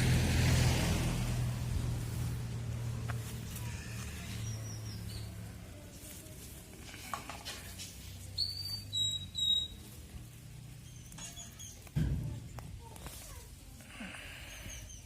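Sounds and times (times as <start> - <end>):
small birds chirping: 3.1 - 6.3, 8.2 - 12.0, 12.8 - 15.0.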